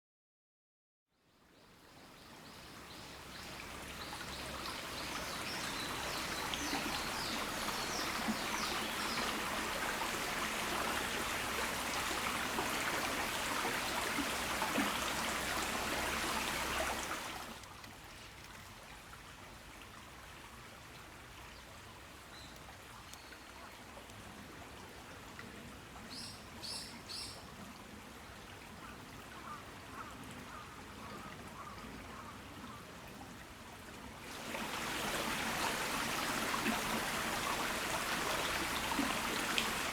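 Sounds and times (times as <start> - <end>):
rain falling in a garden: 1.3 - 39.9.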